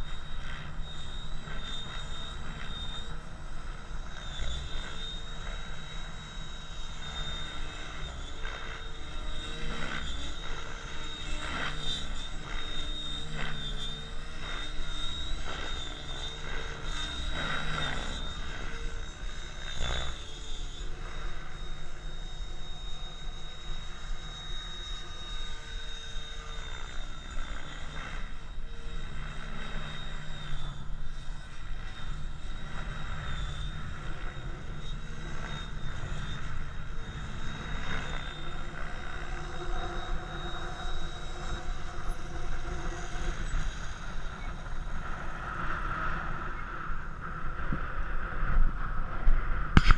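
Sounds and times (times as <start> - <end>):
rc helicopter motor whine: 0.0 - 49.9
wind rumble on microphone: 43.3 - 49.9.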